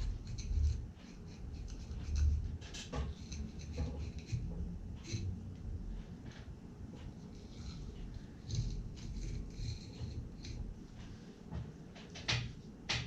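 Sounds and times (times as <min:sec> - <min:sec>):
knife scratching through fish: 0:00.0 - 0:05.4, 0:07.2 - 0:10.7.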